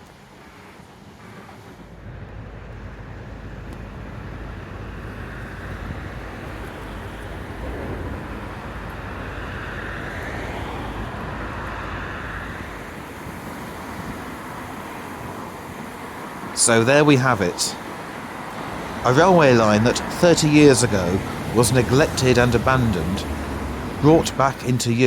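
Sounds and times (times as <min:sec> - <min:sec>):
train rumbling past: 0:00.0 - 0:25.0
wind on microphone: 0:02.0 - 0:16.6.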